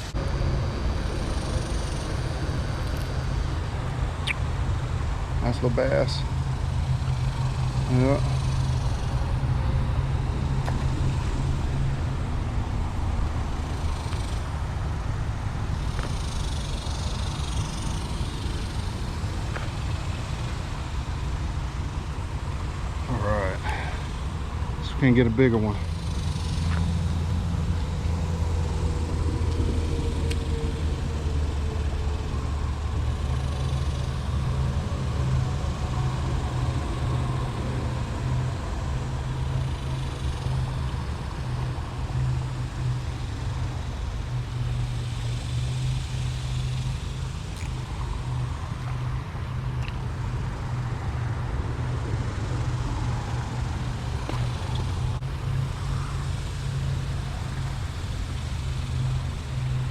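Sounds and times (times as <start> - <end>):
low motor hum: 0.0 - 59.9
road traffic noise: 0.0 - 59.9.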